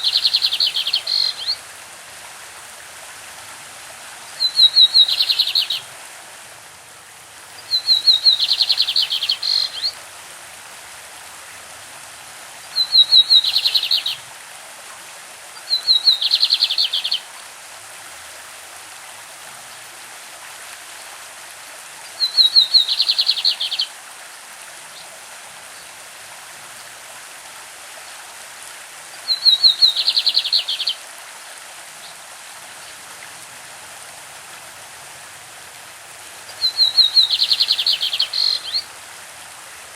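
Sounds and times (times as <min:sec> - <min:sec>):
bird singing high trills: 0:00.0 - 0:01.6, 0:04.4 - 0:05.8, 0:07.7 - 0:09.9, 0:36.6 - 0:38.8
running stream water: 0:00.0 - 0:39.9.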